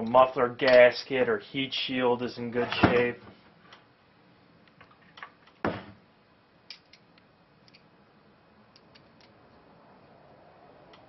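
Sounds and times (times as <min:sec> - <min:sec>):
small metal parts clicking: 0:06.7 - 0:07.9, 0:08.7 - 0:09.4.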